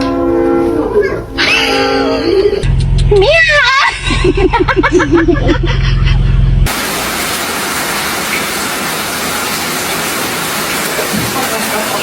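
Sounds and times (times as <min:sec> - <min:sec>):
voice with changing pitch: 0:00.6 - 0:04.3
steady low bass: 0:02.2 - 0:06.7.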